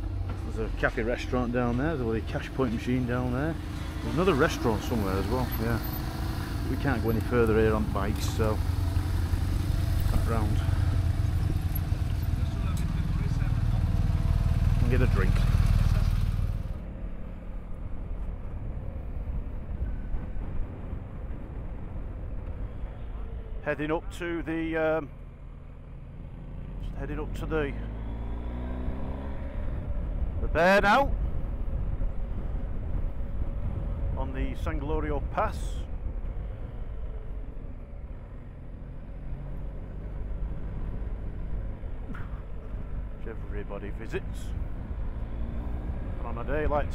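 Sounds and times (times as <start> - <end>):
motorcycle engine rumble: 0.0 - 46.9
road and wind noise: 0.0 - 46.9
motorcycle engine running: 2.2 - 16.9
wind rumble on microphone: 17.5 - 23.6, 29.5 - 38.2.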